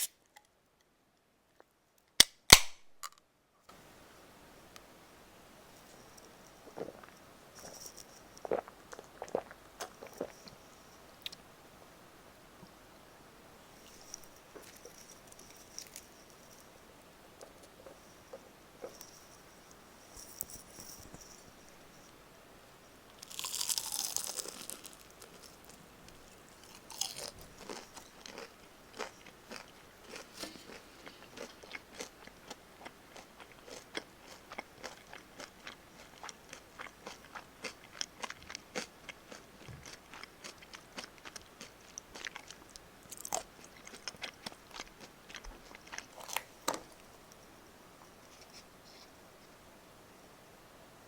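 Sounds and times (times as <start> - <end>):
fried chicken crunching: 23.2 - 25.8, 26.5 - 46.8.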